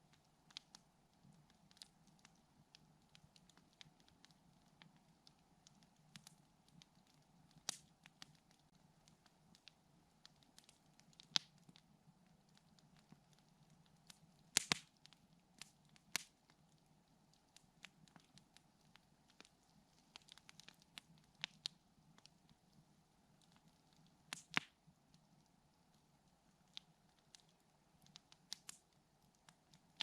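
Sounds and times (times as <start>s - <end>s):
campfire wood crackling: 0.0s - 30.0s
sharp fire pops: 14.5s - 14.9s, 24.3s - 24.7s.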